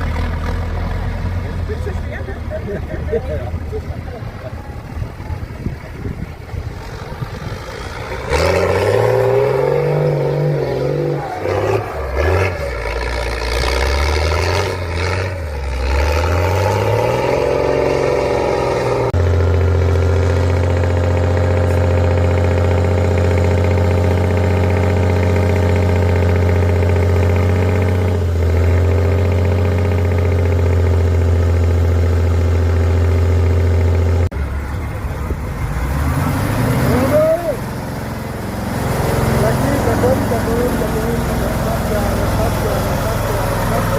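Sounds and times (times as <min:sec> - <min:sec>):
truck engine revving: 0:00.0 - 0:43.9.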